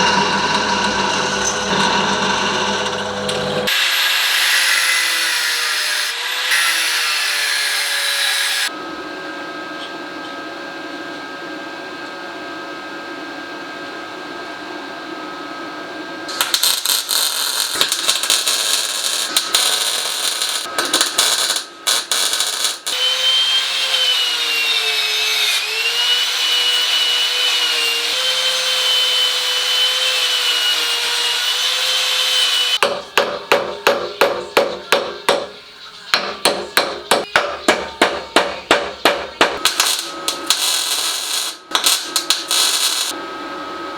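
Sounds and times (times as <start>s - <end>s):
power tool whining: 16.3s - 32.8s, 39.6s - 43.2s
hammer striking: 32.8s - 35.6s, 36.2s - 40.7s.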